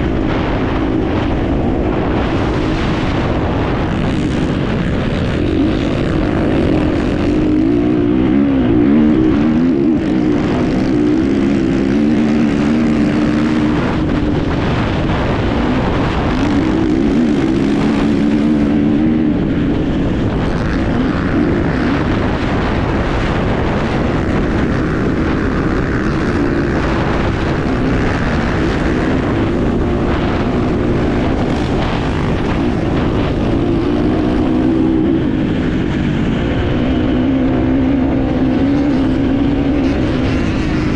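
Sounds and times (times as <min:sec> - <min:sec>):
motorcycle engine revving: 0:00.0 - 0:40.9
rough rushing noise: 0:00.0 - 0:40.9.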